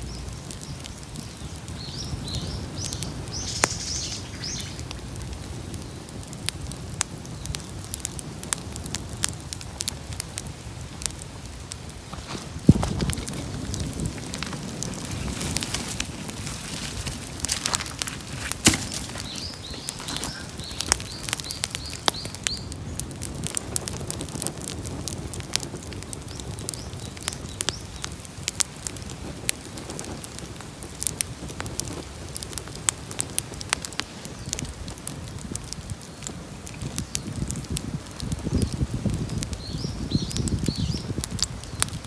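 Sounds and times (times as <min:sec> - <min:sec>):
bonfire crackling and popping: 0:00.0 - 0:42.0
bird chirping: 0:01.4 - 0:04.8, 0:18.8 - 0:22.7.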